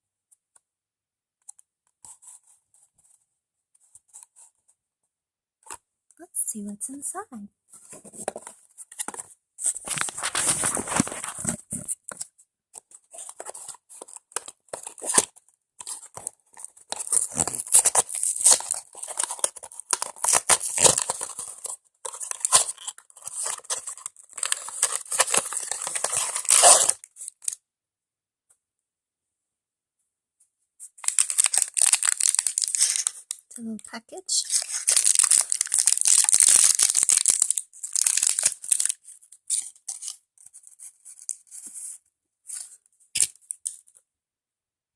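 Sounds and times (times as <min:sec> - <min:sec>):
packaging rustling and crinkling: 0:07.8 - 0:27.6, 0:30.8 - 0:33.4, 0:34.4 - 0:43.9
cardboard box tearing: 0:08.0 - 0:12.2, 0:13.2 - 0:27.3, 0:31.1 - 0:33.1, 0:34.4 - 0:40.1.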